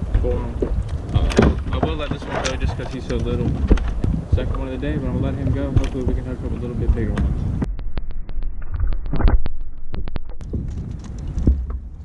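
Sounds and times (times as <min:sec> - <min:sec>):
wind rumbling on microphone: 0:00.0 - 0:12.0
dull thump: 0:00.1 - 0:02.4
sharp clicks: 0:07.2 - 0:11.5.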